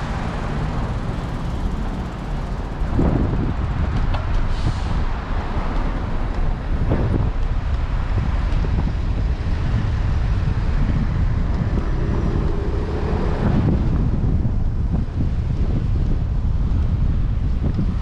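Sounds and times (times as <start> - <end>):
street traffic: 0.0 - 18.0
wind buffeting microphone: 0.0 - 18.0.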